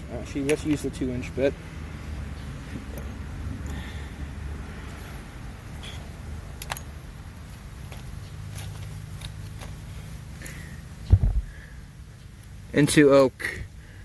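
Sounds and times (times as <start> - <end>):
steady low rumble: 0.0 - 12.8
light clicks of tools: 0.3 - 1.0, 6.6 - 9.8
heavy low thump: 11.1 - 11.5.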